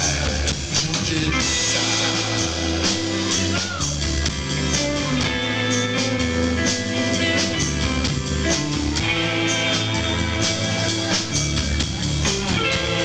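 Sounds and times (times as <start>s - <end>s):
drums with cymbals: 0.0s - 13.0s
rock band playing: 0.0s - 13.0s
electric guitar notes: 4.0s - 13.0s.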